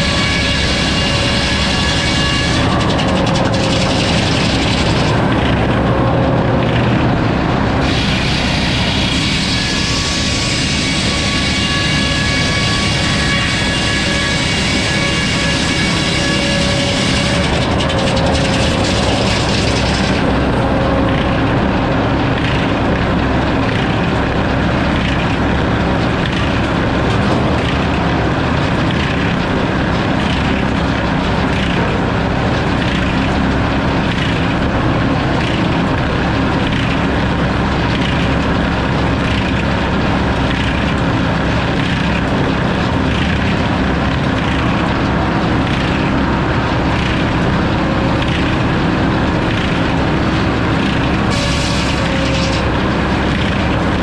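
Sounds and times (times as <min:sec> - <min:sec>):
sawmill saw cutting log: 0:00.0 - 0:54.0.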